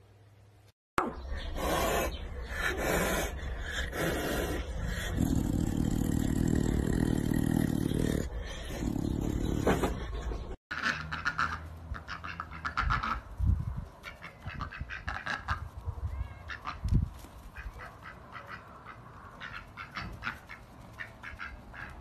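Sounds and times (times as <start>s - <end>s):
ducks quacking: 9.6s - 13.3s, 14.0s - 15.6s, 17.5s - 22.0s.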